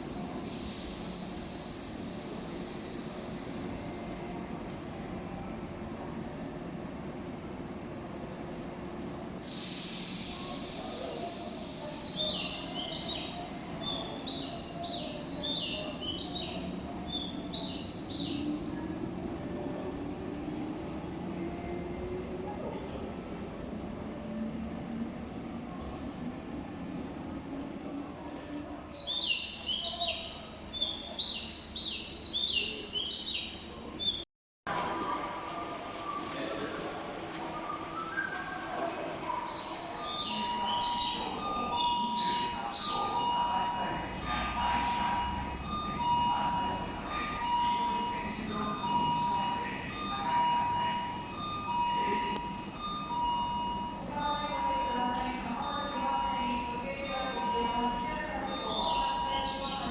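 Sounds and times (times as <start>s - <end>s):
low station rumble: 0.0s - 33.0s, 33.6s - 59.9s
compressed air hiss: 9.4s - 12.4s.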